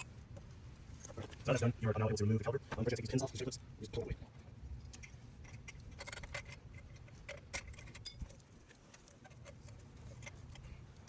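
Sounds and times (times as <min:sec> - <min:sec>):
metal tools clinking and rattling: 0:04.8 - 0:09.1.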